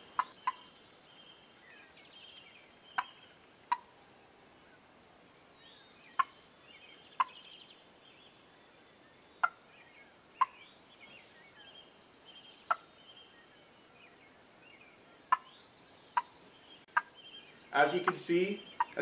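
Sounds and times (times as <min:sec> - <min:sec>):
turkey hen putts: 0:00.0 - 0:00.8, 0:02.8 - 0:04.6, 0:06.1 - 0:06.4, 0:07.2 - 0:07.6, 0:09.2 - 0:11.9, 0:12.5 - 0:12.9, 0:15.0 - 0:17.2, 0:17.8 - 0:19.0
faint songbird twittering: 0:00.0 - 0:19.0.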